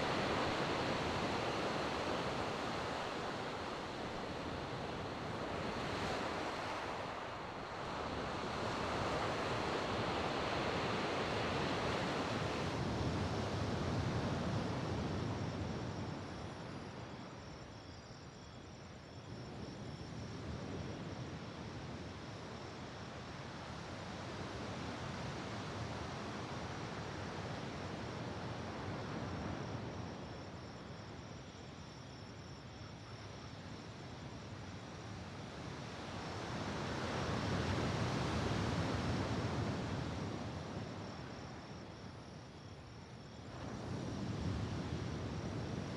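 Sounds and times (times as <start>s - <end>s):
sea waves washing ashore: 0.0s - 15.0s.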